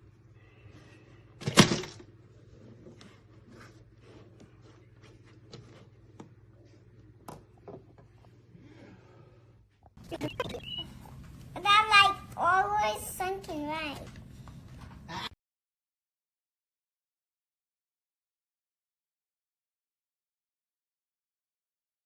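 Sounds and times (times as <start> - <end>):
steady low hum: 10.0 - 15.3.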